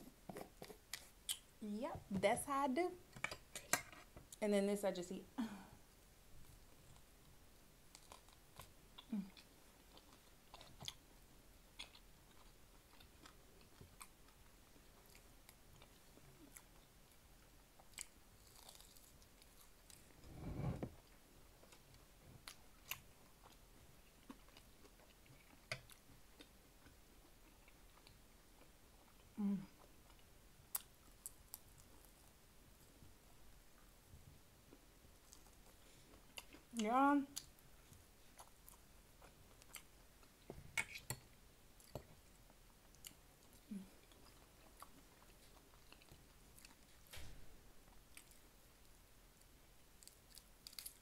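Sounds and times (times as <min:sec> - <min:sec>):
person chewing food: 0:00.0 - 0:01.5, 0:07.8 - 0:33.0, 0:37.4 - 0:47.1, 0:47.9 - 0:51.0.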